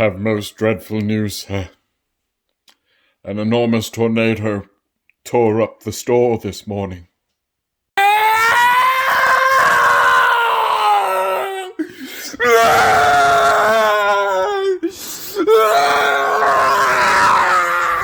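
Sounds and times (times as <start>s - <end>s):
person wailing: 8.0s - 18.0s.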